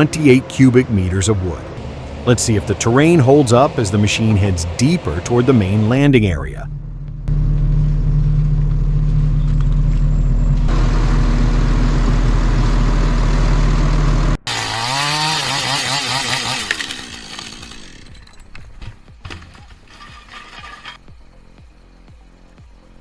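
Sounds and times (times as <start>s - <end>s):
heavy machine engine droning: 0.0s - 21.0s
chainsaw revving: 14.0s - 18.4s.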